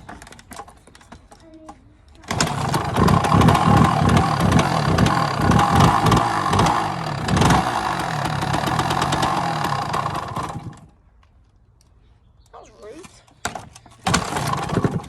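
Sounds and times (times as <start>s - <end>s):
motorbike kick-starting: 0.0s - 1.4s, 2.2s - 11.0s, 13.4s - 15.0s
motorbike engine revving unevenly: 2.2s - 10.9s, 14.0s - 15.0s.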